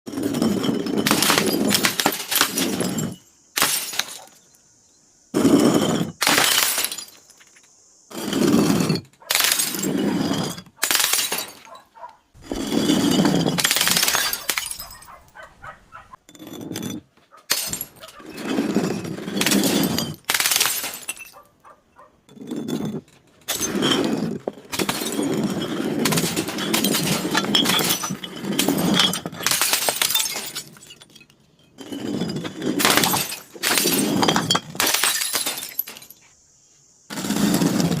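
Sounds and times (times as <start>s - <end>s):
glass bottles breaking and crunching: 0.1s - 4.6s, 5.4s - 7.4s, 8.2s - 11.8s, 12.4s - 15.4s, 16.4s - 21.5s, 22.3s - 36.2s.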